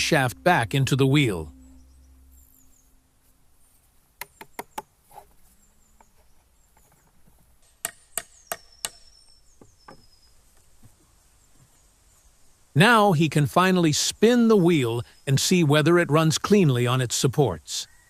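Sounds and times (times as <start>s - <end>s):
hammer striking metal pin: 7.6s - 9.1s.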